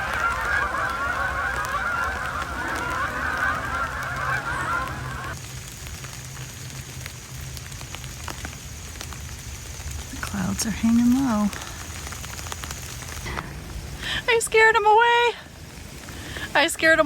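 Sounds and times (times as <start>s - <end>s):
flock of large birds calling: 0.0s - 5.4s.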